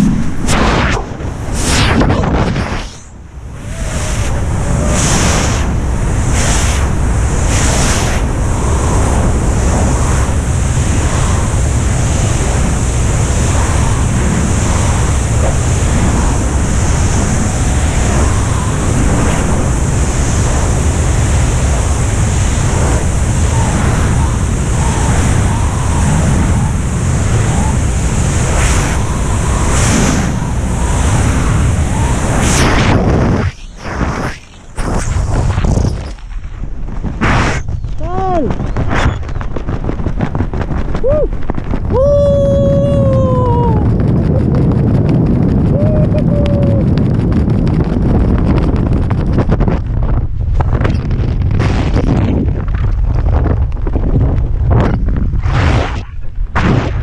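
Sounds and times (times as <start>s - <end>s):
airplane engine drone: 0.0s - 39.4s
rushing wind: 0.0s - 57.0s
wind buffeting microphone: 0.0s - 57.0s.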